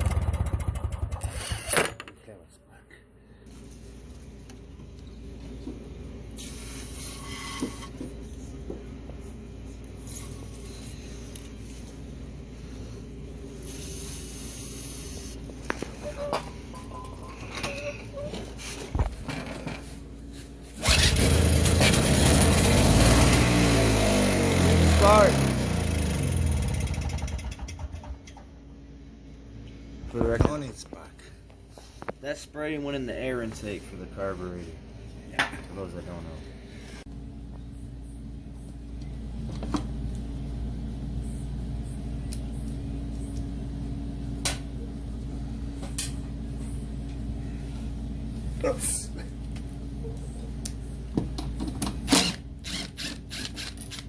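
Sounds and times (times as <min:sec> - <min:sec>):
snowblower engine starting and running: 0:00.0 - 0:01.7, 0:20.7 - 0:28.4
low mechanical hum: 0:00.0 - 0:54.0.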